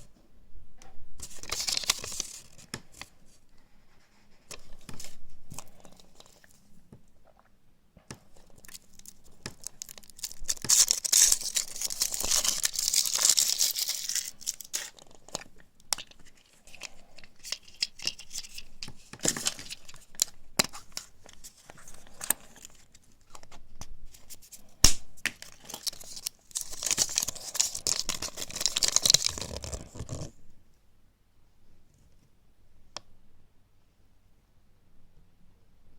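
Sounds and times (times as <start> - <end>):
foil wrapper crinkling: 1.2 - 3.0, 8.4 - 23.5, 25.4 - 30.3.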